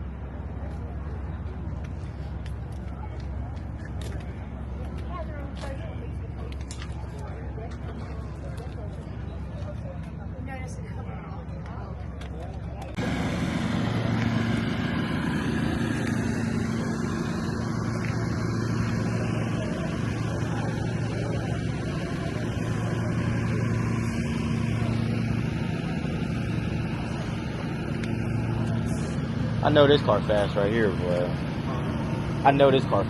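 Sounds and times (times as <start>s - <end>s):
car engine running steadily: 11.6s - 33.0s.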